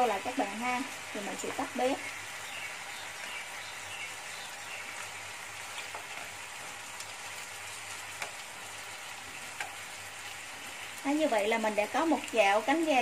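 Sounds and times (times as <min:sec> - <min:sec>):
chicken wings sizzling in a pan: 0:00.0 - 0:13.0
chopsticks clicking against a pan: 0:08.2 - 0:08.4.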